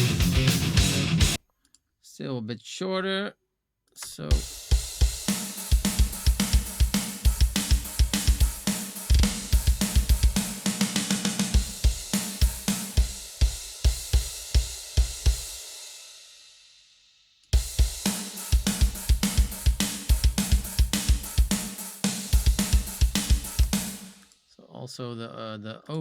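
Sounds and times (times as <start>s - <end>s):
fast metal drum beat: 0.0s - 1.4s, 4.3s - 15.8s, 17.6s - 24.2s.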